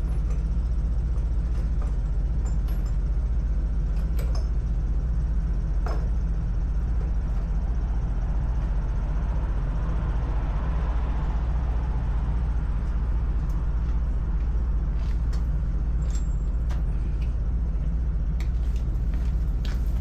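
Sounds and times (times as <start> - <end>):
low engine rumble: 0.0 - 20.0
light clicks and clinks: 16.0 - 17.3.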